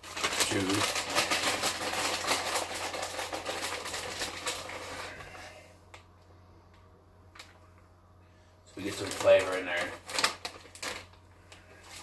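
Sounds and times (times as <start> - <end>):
shredded cheese crackling rustle: 0.0 - 5.6, 8.8 - 12.0
low steady hum: 0.0 - 12.0.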